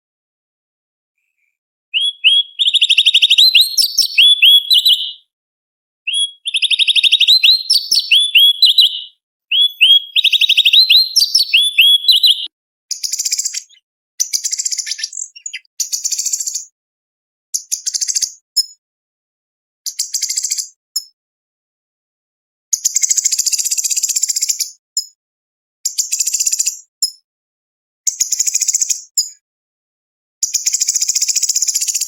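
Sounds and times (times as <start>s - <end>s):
harsh high bird chattering: 2.0s - 5.2s, 6.1s - 12.5s, 13.3s - 16.0s
bird singing trilled phrases: 2.0s - 5.3s, 6.1s - 16.7s, 17.6s - 18.7s.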